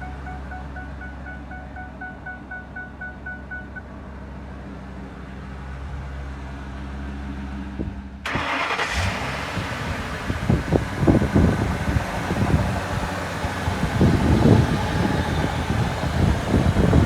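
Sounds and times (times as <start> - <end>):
dashboard chime beeping: 0.0 - 4.0
engine starting and idling: 8.2 - 17.0.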